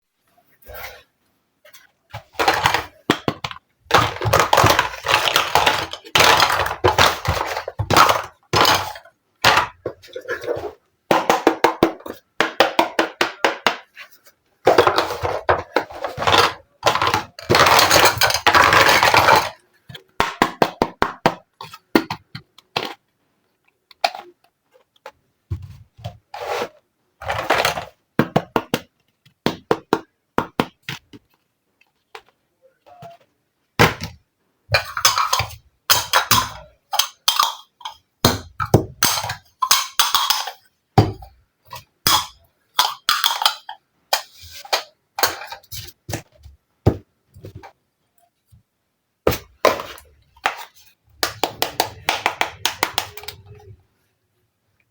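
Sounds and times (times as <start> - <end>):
plastic pieces scraping: 1.7 - 10.9, 13.9 - 20.2.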